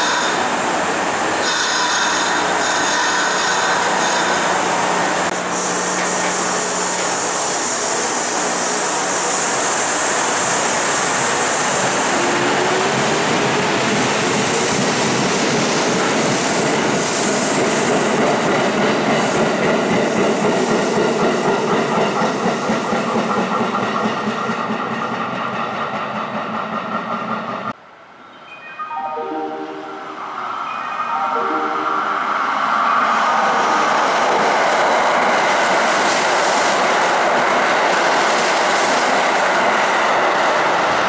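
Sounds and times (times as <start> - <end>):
electric train motors and wheels: 0.0 - 27.8.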